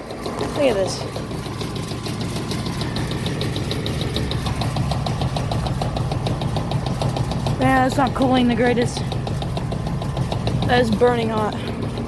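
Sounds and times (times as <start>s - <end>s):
heat pump humming and rattling: 0.0s - 12.0s.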